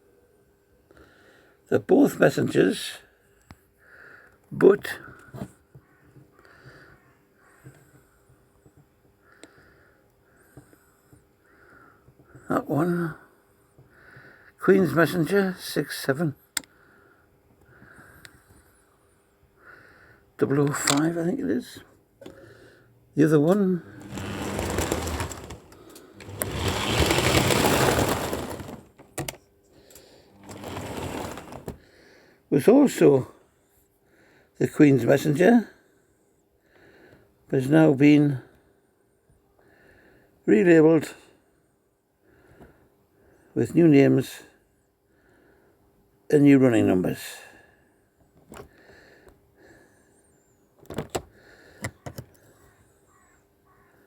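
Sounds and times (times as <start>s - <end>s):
model train motor whirr and rumble: 23.8s - 29.1s, 30.3s - 31.8s.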